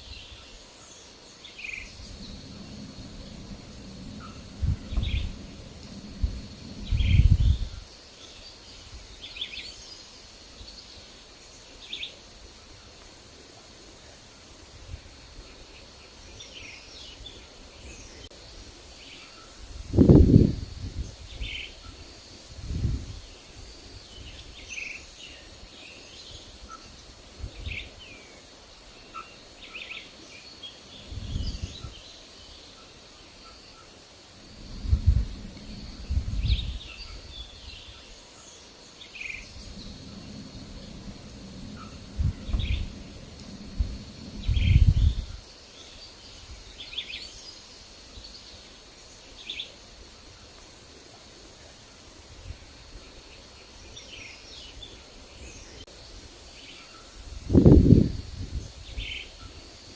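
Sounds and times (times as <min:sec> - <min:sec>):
birds chirping: 0:00.0 - 0:11.0, 0:29.0 - 0:48.6
insect drone: 0:00.0 - 0:59.9
wind gusts on microphone: 0:01.4 - 0:09.6, 0:19.5 - 0:28.1, 0:30.9 - 0:32.1, 0:34.2 - 0:38.2, 0:39.2 - 0:45.6, 0:57.1 - 0:59.9.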